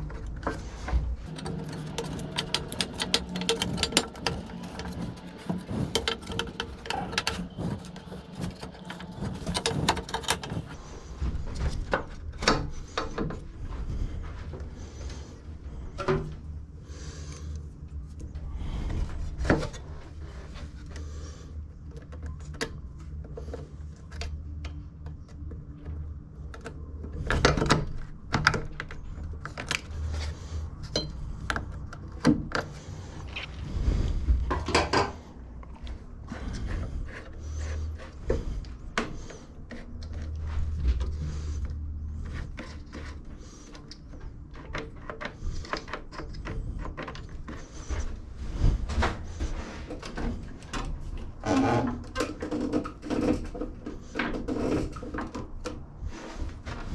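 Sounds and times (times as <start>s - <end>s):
tools clattering on metal parts: 1.3s - 10.8s.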